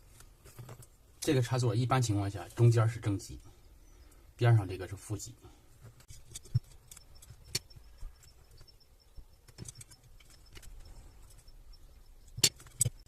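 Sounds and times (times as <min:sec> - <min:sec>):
small parts clicking on workbench: 0:09.4 - 0:11.5.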